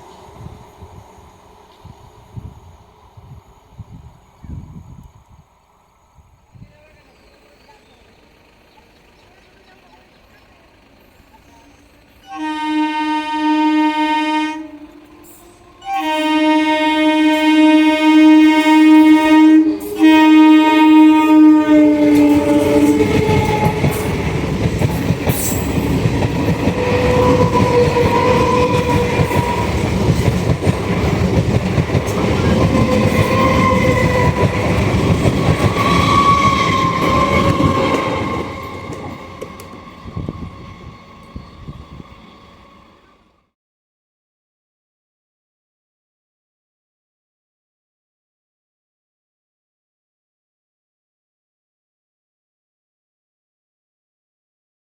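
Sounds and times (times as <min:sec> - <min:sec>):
train passing with rumble: 0:00.0 - 0:43.4
train horn blasts: 0:12.2 - 0:24.4, 0:26.4 - 0:30.6, 0:32.1 - 0:43.3
train wheel clatter: 0:21.7 - 0:42.2.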